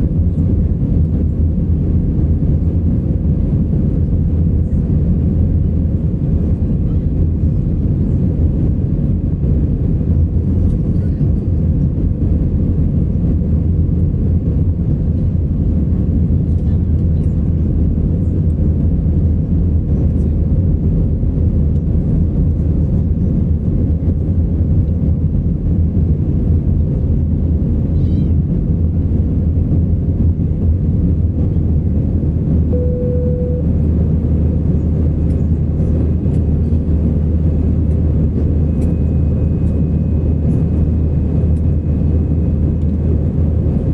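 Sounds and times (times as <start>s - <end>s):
jet engine cabin drone: 0.0s - 43.9s
single tone: 32.7s - 33.8s.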